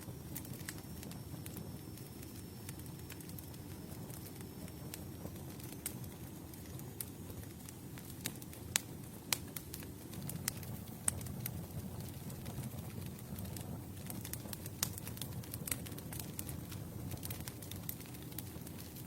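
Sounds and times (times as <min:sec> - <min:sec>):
campfire burning: 0:00.0 - 0:19.0
wood crackling and popping: 0:00.0 - 0:19.0.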